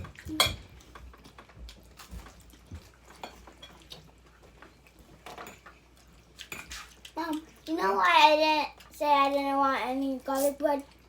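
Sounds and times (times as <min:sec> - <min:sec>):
cutlery clinking on plates: 0:00.0 - 0:01.2, 0:05.2 - 0:05.8.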